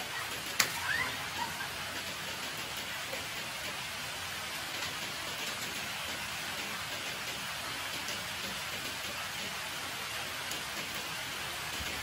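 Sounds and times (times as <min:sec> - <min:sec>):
rain on concrete: 0:00.0 - 0:12.0.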